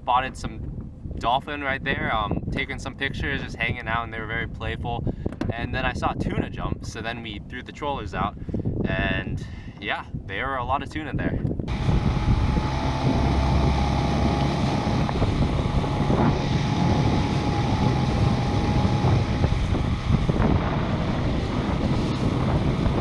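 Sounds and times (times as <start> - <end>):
wind buffeting microphone: 0.0 - 23.0
outboard motor running: 11.7 - 23.0.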